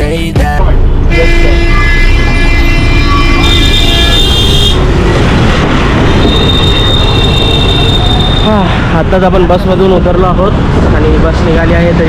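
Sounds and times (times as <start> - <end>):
bus and road traffic rumbling: 0.0 - 12.0
long high-pitched tones: 1.1 - 4.8.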